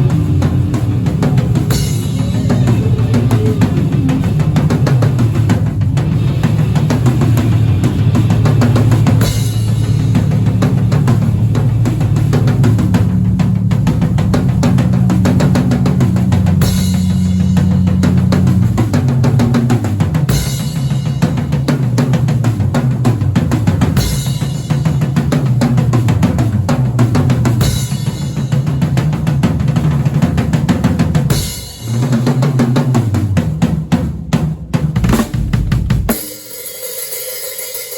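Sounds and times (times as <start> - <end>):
deep held bass notes: 0.0 - 20.4
drum kit playing: 0.0 - 37.9.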